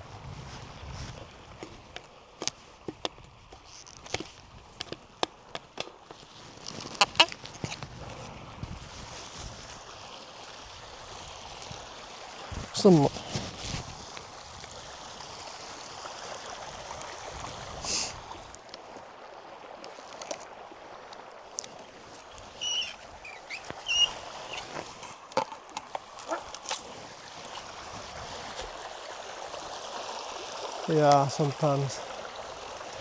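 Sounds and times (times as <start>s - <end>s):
stream rushing: 0.0s - 33.0s
high-pitched bird calls: 22.5s - 24.8s.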